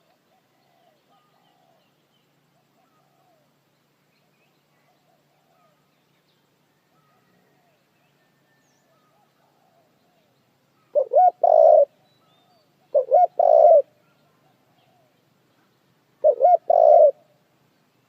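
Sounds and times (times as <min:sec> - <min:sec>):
dove cooing: 0:00.0 - 0:01.9, 0:02.6 - 0:03.5, 0:09.0 - 0:10.3, 0:10.9 - 0:15.2, 0:16.2 - 0:17.4.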